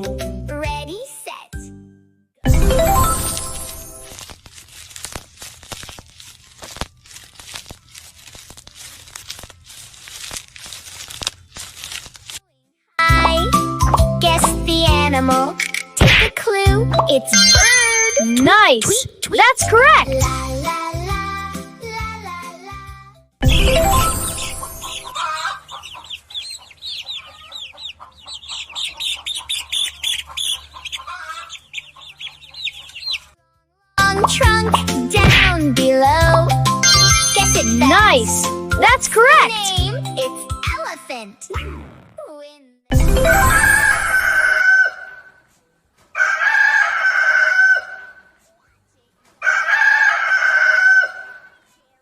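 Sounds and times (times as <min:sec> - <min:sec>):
bird chirping: 0:24.3 - 0:33.3.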